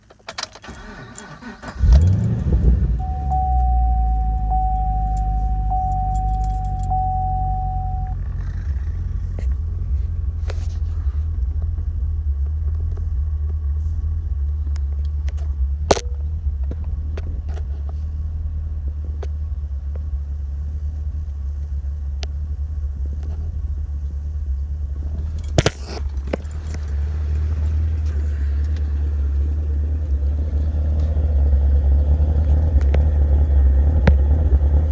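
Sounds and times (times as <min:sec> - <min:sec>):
car engine cranking and idling: 0:00.0 - 0:34.9
steady high tone: 0:02.5 - 0:08.2.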